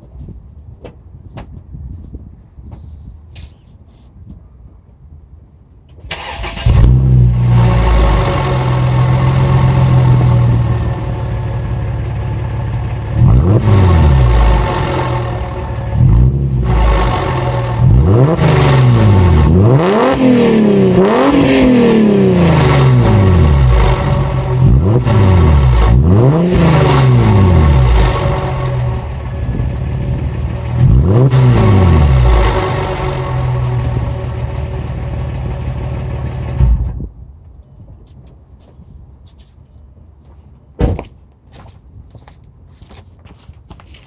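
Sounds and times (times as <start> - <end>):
engine revving: 6.1 - 11.4, 12.8 - 36.9
car engine starting: 6.1 - 37.0.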